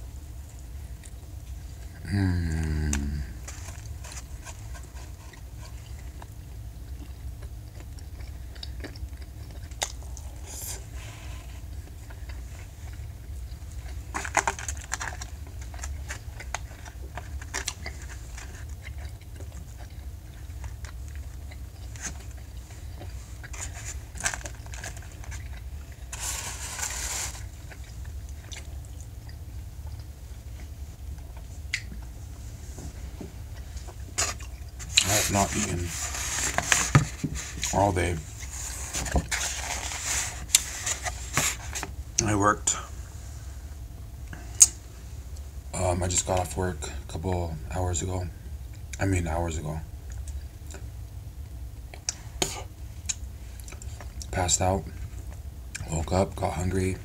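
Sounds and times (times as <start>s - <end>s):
person chewing: 0.4s - 41.9s, 51.8s - 54.3s
rustling: 21.9s - 28.5s, 32.1s - 41.9s.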